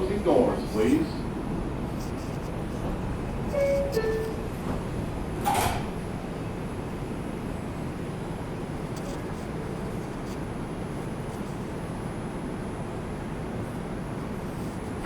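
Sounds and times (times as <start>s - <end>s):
subway train rumble: 0.0s - 15.0s
doors closing clunk: 4.6s - 6.0s.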